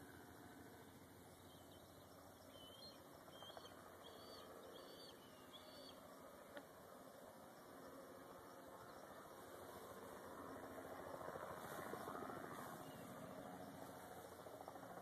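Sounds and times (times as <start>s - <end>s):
faint high bird calls: 1.4s - 6.1s.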